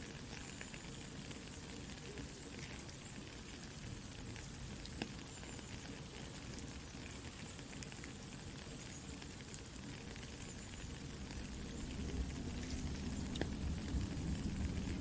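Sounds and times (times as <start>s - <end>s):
soft steady rain: 0.0s - 15.0s.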